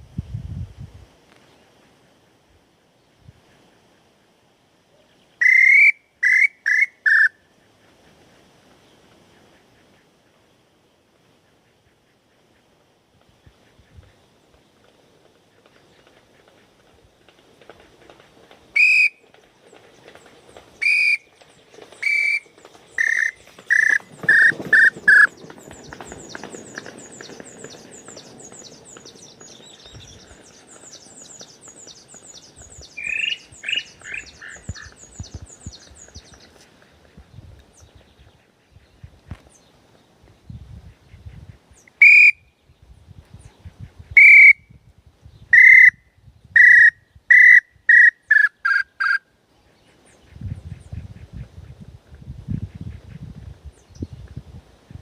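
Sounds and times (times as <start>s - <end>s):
whistled bird call imitation: 5.4s - 7.4s, 18.8s - 19.2s, 20.8s - 21.3s, 22.0s - 25.3s, 32.8s - 34.9s, 41.9s - 42.5s, 44.2s - 44.6s, 45.5s - 46.0s, 46.6s - 49.2s.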